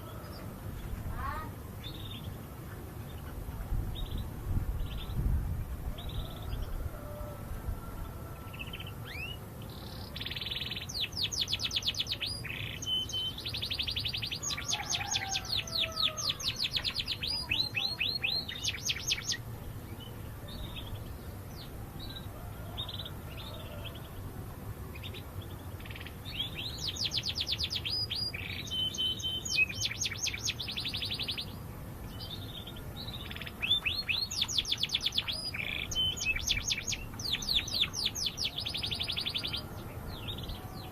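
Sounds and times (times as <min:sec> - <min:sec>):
canary singing trills: 0:08.4 - 0:24.3, 0:24.9 - 0:40.9.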